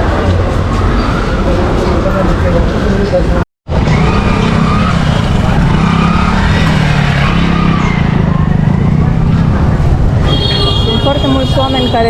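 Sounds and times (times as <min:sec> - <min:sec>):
busy street traffic: 0:00.0 - 0:12.0
vehicle engine running: 0:03.7 - 0:11.9.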